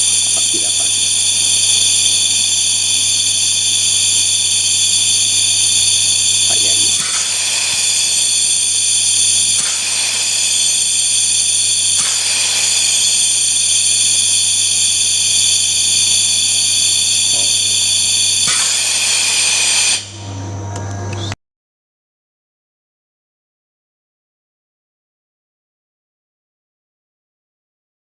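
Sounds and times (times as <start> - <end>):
blower high-pitched whine: 0.0 - 21.4.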